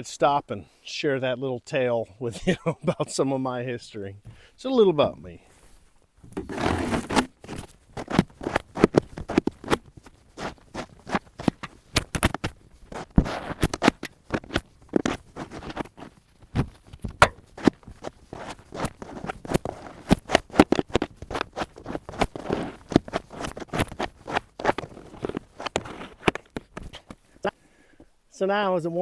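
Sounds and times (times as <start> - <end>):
footsteps crunching in snow: 5.4 - 27.2
snow shovel scraping and knocking: 5.4 - 27.4.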